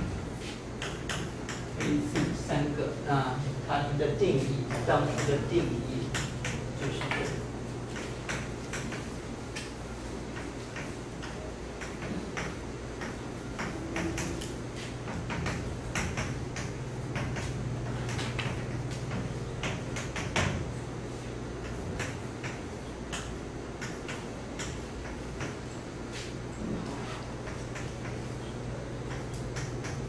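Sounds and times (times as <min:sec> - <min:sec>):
writing taps and scratches on board: 0:00.8 - 0:02.4, 0:10.3 - 0:20.6, 0:21.6 - 0:26.3.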